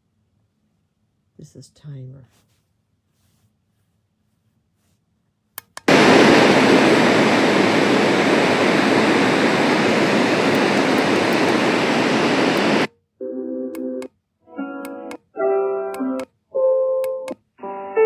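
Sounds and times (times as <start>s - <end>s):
button clicks: 5.6s - 5.9s, 10.5s - 11.5s, 13.8s - 14.1s, 14.8s - 15.2s, 16.0s - 16.3s, 17.0s - 17.4s
loud steady rushing noise: 5.9s - 12.9s.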